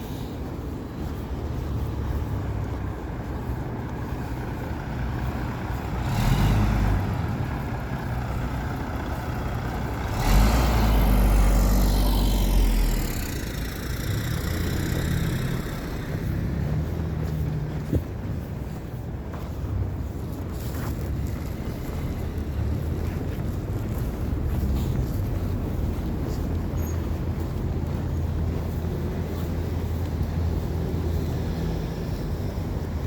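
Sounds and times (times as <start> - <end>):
street traffic rumble: 0.0 - 33.0
vehicle with deep engine passing: 0.9 - 33.0.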